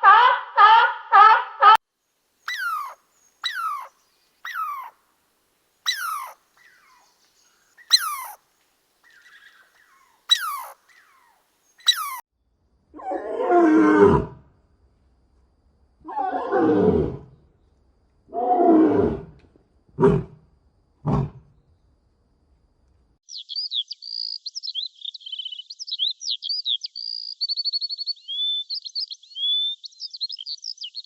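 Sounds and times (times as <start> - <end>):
animal calls sliding down: 2.5 - 3.9, 4.5 - 4.9, 5.9 - 7.0, 7.8 - 8.4, 10.3 - 10.8, 11.8 - 12.2
low falling animal call: 2.5 - 5.0, 5.9 - 8.4, 9.1 - 12.2.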